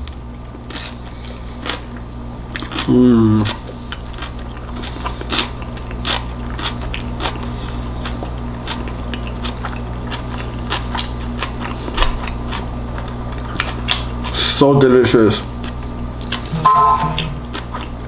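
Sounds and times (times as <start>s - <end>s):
steady low hum: 0.0s - 18.0s
person chewing with wet clicks: 1.6s - 14.4s, 15.6s - 16.5s, 17.2s - 18.0s.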